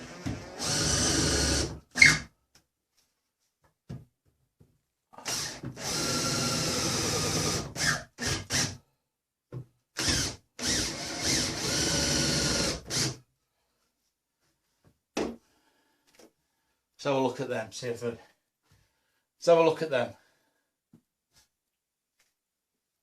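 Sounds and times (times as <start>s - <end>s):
power drill boring through wood: 0.0s - 2.3s, 5.2s - 8.8s, 10.0s - 13.2s.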